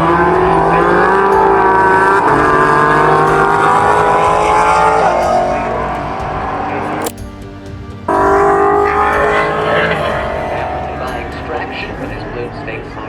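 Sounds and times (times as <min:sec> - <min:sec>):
race car engine: 0:00.0 - 0:07.2.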